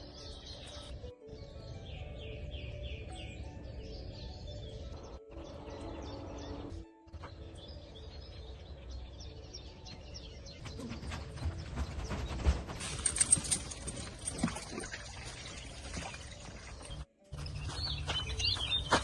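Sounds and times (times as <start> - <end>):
small birds chirping: 0.0 - 14.5, 15.2 - 19.0.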